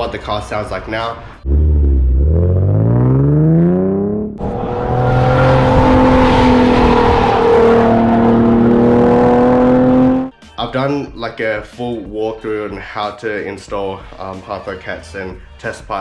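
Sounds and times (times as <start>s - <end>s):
car engine revving: 1.4s - 10.3s
engine running raspy note: 1.4s - 10.3s.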